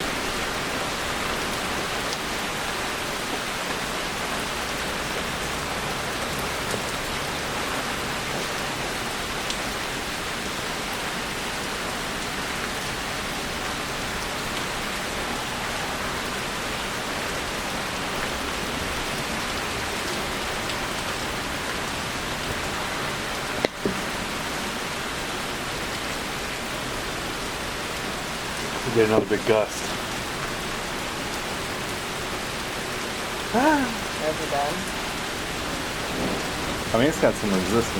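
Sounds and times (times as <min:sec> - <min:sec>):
rain falling: 0:00.0 - 0:37.9
raindrop ticks: 0:23.5 - 0:24.2, 0:36.0 - 0:37.9.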